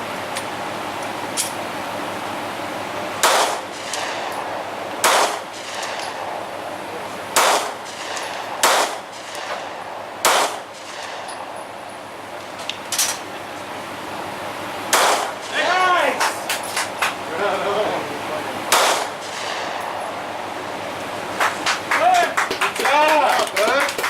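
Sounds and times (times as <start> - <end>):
gunshots: 3.2 - 6.3, 7.3 - 11.5, 14.9 - 16.6, 18.7 - 20.3.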